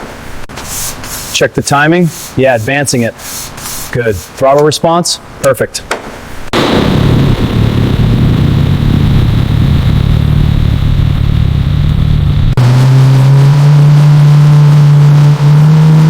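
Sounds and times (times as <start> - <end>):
car engine running: 9.2 - 16.0.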